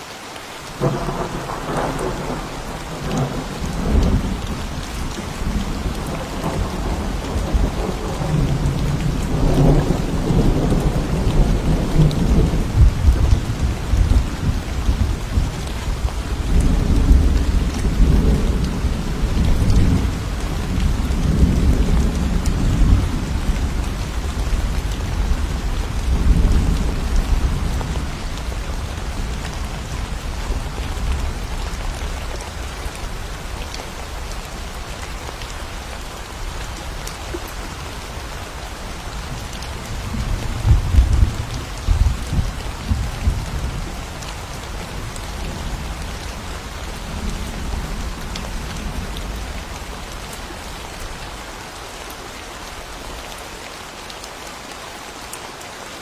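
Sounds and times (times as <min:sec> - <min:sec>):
steady rain falling: 0:00.0 - 0:56.0
rolling thunder: 0:00.8 - 0:04.6, 0:05.4 - 0:31.4, 0:39.8 - 0:43.9.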